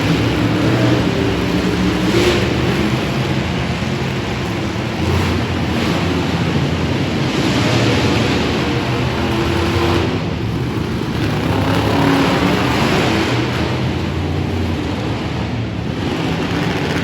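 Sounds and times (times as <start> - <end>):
truck engine running loudly: 0.0 - 17.0.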